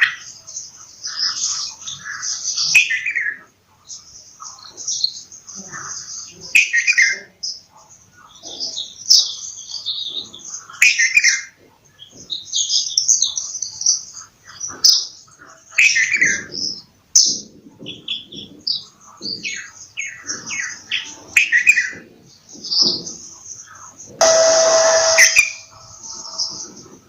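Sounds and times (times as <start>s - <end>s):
bird chirping and whistling: 24.2s - 25.7s.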